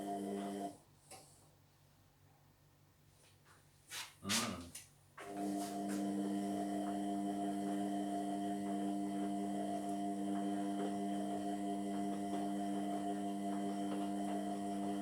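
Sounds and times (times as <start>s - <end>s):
washing machine motor running: 0.0s - 0.7s, 5.2s - 15.0s.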